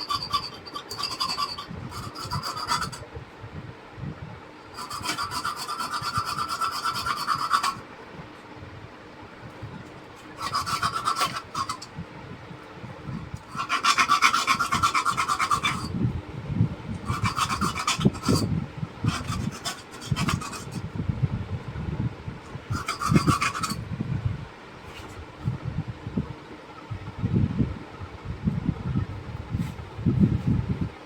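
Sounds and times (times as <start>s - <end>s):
wire connector scraped: 0.0s - 3.0s, 4.8s - 7.8s, 10.2s - 11.9s, 13.4s - 15.9s, 17.0s - 18.5s, 19.1s - 20.8s, 22.7s - 23.8s.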